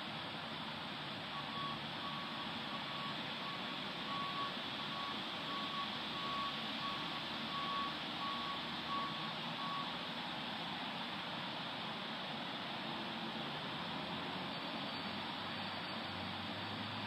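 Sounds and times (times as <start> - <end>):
vehicle reversing alarm beeping: 1.3 - 10.8, 13.8 - 17.0.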